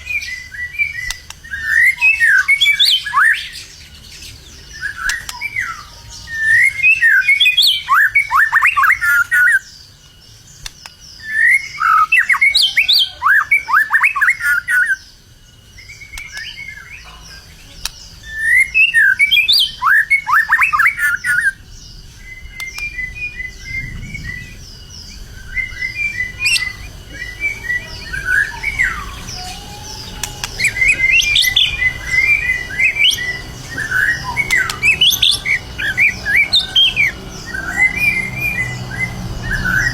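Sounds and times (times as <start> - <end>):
songbird whistles and trills: 0.0 - 39.9
bird chattering: 16.2 - 39.9.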